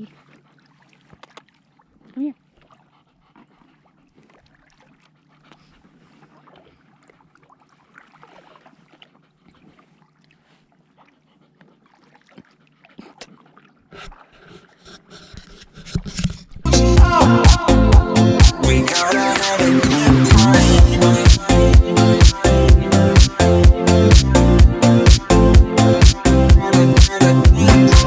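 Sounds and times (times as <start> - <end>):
dog panting faintly: 2.0 - 6.9, 9.0 - 16.6
music: 16.7 - 28.0.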